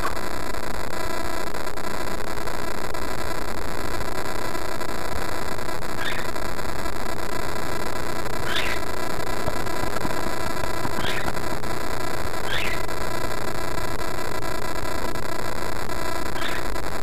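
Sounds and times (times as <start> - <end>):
parrot chirps: 6.0 - 6.4, 8.4 - 10.1, 10.8 - 11.4, 12.4 - 12.9, 16.4 - 16.7.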